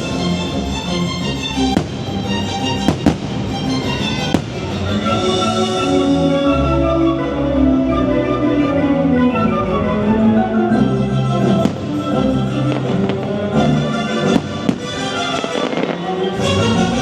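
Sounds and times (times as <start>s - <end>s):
fireworks bursting: 0.0s - 5.8s, 11.4s - 17.0s
orchestral music: 0.0s - 17.0s.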